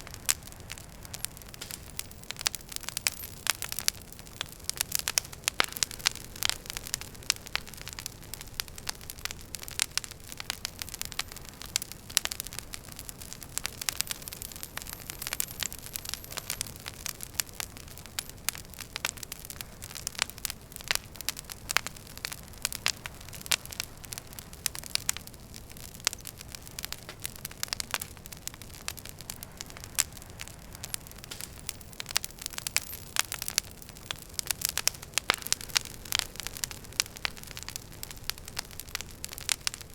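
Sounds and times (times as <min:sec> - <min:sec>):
burning logs crackling: 0:00.0 - 0:39.9.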